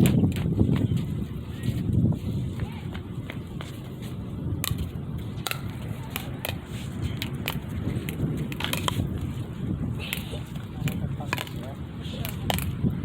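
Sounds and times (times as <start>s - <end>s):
wind rumble on microphone: 0.0s - 13.0s
paddles striking plastic ball: 10.1s - 12.8s.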